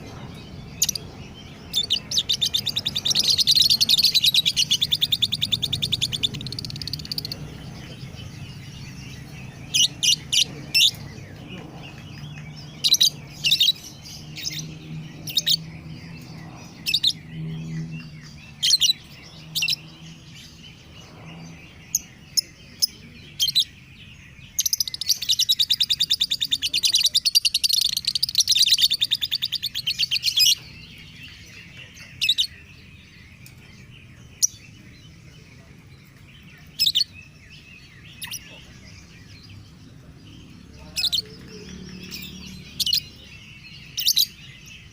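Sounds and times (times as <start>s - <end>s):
lovebird chirping: 0.0s - 44.9s.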